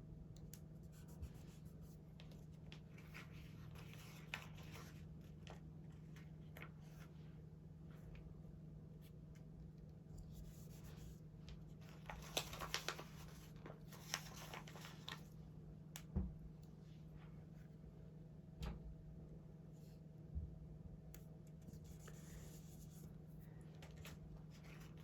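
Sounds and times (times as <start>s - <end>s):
low steady hum: 0.0s - 25.0s
sticker sheet crinkling: 11.8s - 15.2s.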